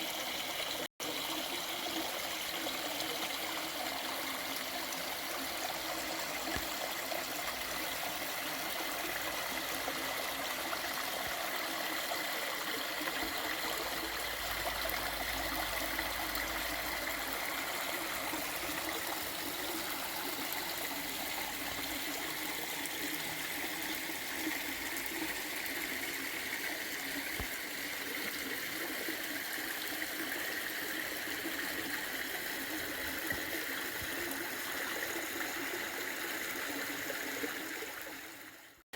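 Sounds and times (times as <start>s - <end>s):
creek flowing: 0.0s - 38.8s.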